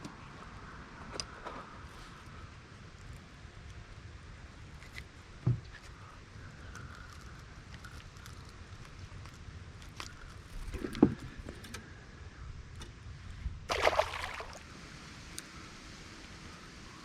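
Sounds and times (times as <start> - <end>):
water splashing: 13.7 - 14.7.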